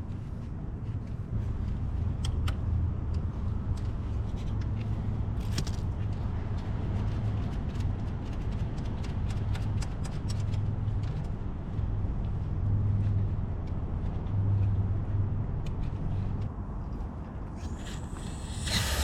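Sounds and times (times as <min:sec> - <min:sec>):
engine humming: 0:17.6 - 0:19.0.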